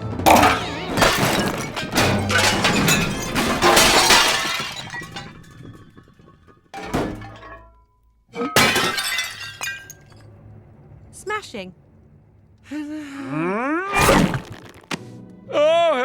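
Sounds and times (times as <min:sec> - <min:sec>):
background music: 0:00.0 - 0:02.5
ornaments shattering: 0:00.0 - 0:07.8, 0:08.4 - 0:10.2, 0:14.0 - 0:14.9.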